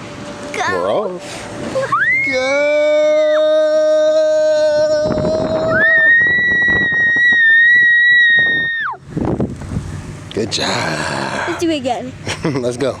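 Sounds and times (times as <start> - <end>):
people whooping and squealing: 1.8 - 4.0, 5.4 - 9.0.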